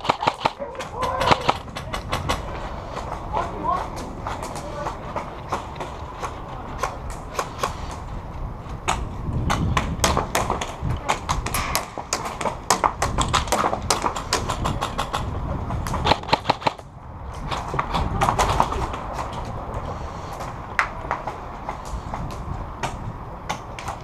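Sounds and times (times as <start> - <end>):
airsoft guns firing: 0.0 - 2.5, 11.4 - 15.3, 16.0 - 16.8.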